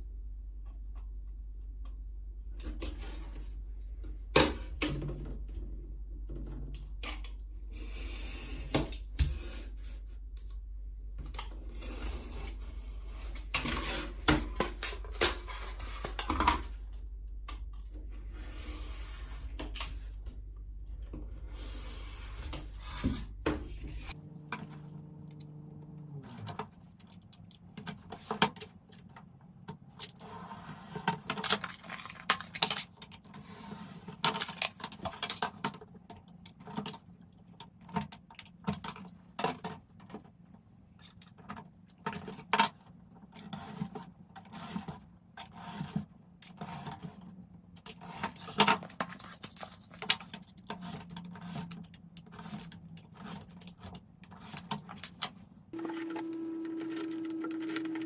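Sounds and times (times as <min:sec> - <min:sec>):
steady low hum: 0:00.0 - 0:27.1
low tones: 0:23.8 - 0:26.6.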